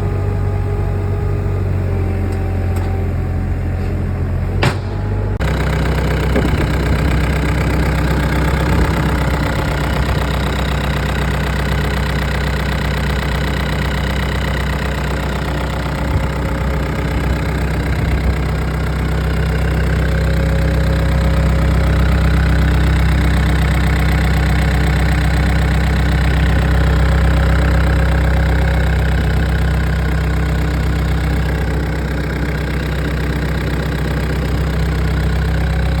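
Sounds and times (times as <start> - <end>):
diesel engine running: 0.0 - 36.0
brief knocks: 4.6 - 5.3.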